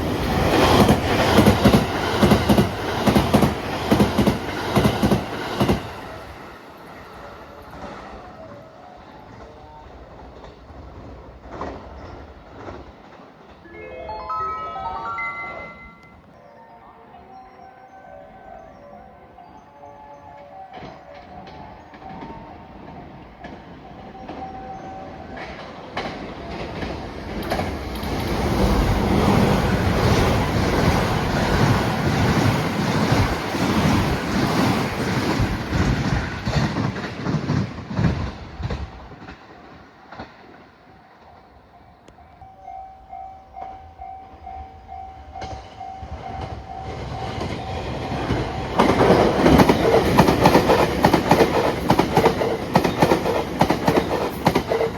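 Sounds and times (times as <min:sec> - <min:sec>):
train wheels clattering over rail joints: 0:25.4 - 0:40.7, 0:47.3 - 0:54.9.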